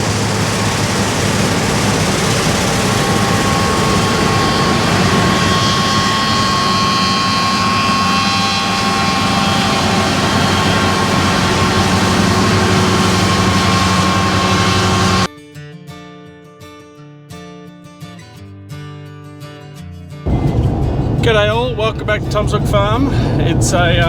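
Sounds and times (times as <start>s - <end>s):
large engine running loudly: 0.0s - 15.3s, 20.3s - 24.0s.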